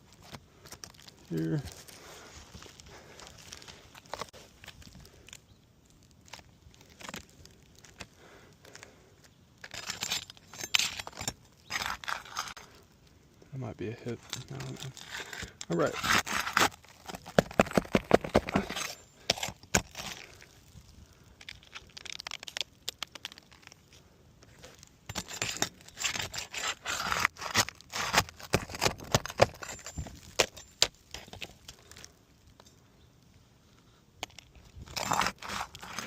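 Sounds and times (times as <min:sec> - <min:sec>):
shingles crackling: 0:00.0 - 0:32.6
metal tool scraping shingles: 0:09.6 - 0:12.6, 0:14.2 - 0:20.2, 0:25.1 - 0:31.3, 0:34.8 - 0:36.0.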